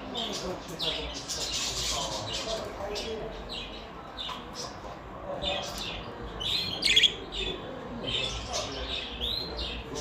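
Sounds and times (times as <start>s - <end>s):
finch chirps and trills: 5.4s - 10.0s.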